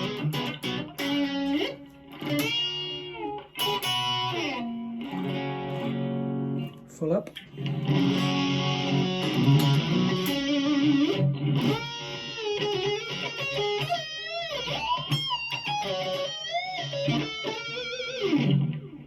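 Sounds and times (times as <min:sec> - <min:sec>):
distorted electric guitar: 0:00.0 - 0:19.0.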